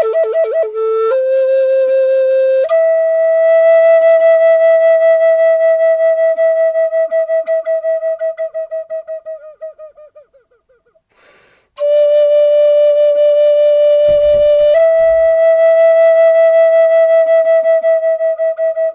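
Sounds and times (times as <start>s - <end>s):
flute playing held notes: 0.0s - 9.9s, 14.1s - 18.9s
breath: 11.1s - 11.8s
low thumps: 14.0s - 15.7s.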